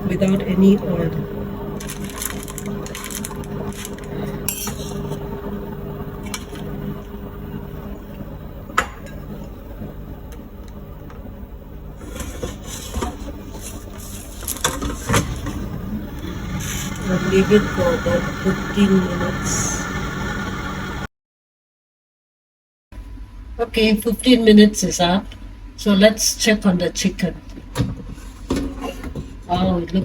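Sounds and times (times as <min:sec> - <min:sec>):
steady low hum: 0:00.0 - 0:21.1.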